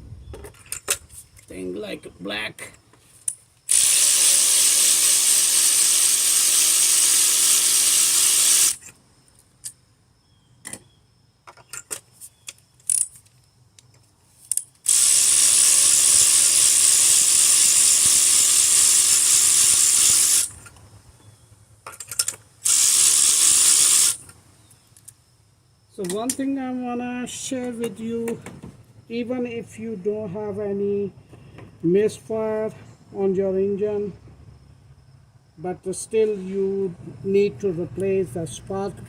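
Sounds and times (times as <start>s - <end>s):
ratchet wrench clicking: 3.3s - 8.9s, 12.8s - 13.3s, 14.4s - 20.7s, 21.9s - 24.3s.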